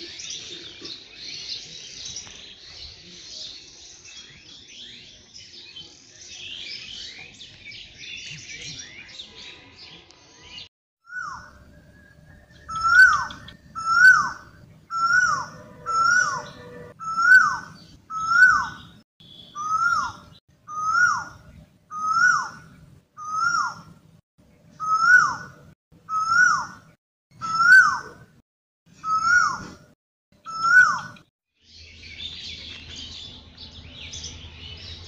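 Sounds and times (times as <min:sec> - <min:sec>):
bird calling: 0:11.1 - 0:22.6, 0:24.8 - 0:25.5, 0:26.1 - 0:26.8, 0:27.4 - 0:28.2, 0:29.0 - 0:29.8, 0:30.4 - 0:31.2.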